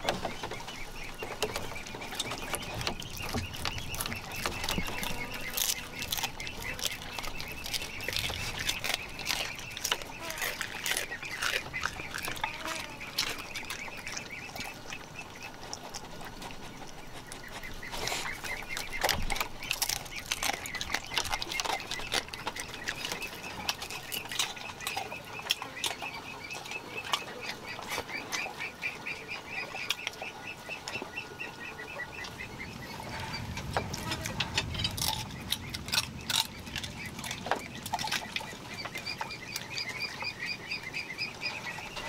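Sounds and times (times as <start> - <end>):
repeated bird calls: 0.0 - 15.7, 16.6 - 42.0.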